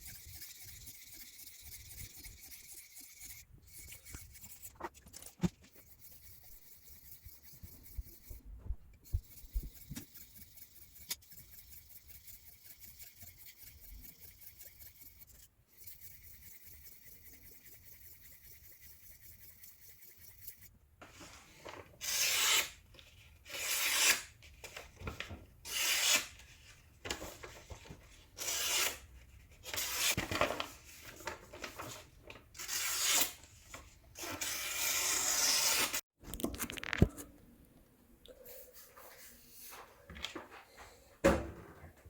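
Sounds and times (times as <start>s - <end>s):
knife rasping on a sharpener: 0.0s - 20.7s.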